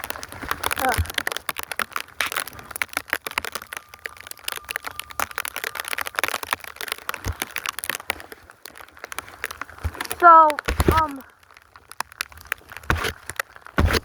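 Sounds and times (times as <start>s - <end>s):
snow crunching and crackling: 0.0s - 14.0s.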